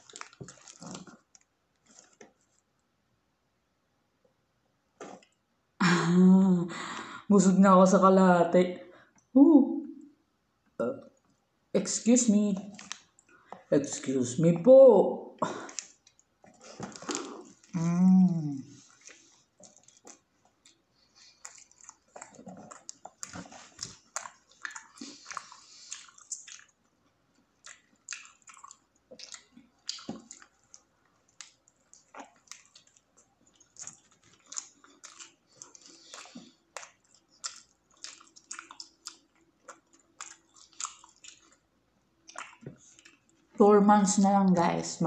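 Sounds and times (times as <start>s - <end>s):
chewing mouth clicks and smacks: 0.0s - 2.4s, 12.6s - 13.7s, 18.9s - 43.5s.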